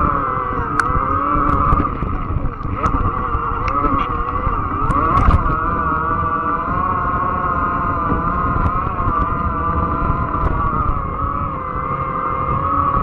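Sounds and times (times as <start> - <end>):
electric bike motor whining: 0.0 - 13.0
wind and tyres rumbling: 0.0 - 13.0
sharp clicks: 0.7 - 5.6.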